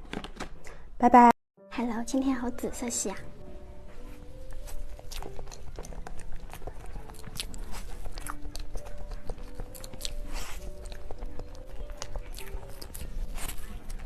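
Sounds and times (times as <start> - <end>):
soft background music: 1.0 - 14.0
crisp chewing clicks: 4.5 - 14.0.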